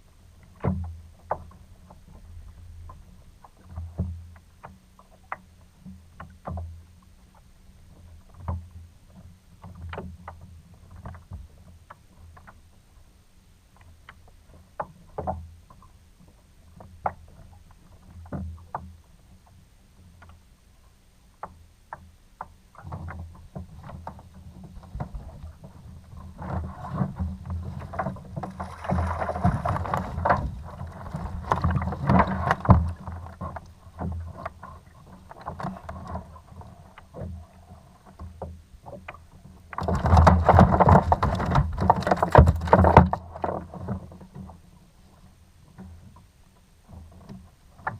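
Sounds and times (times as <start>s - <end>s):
rough water: 0.0s - 47.9s
handling noise: 27.7s - 33.0s.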